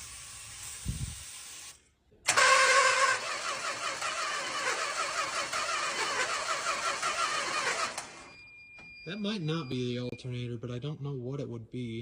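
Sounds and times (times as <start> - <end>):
starter motor cranking engine: 2.3 - 8.3.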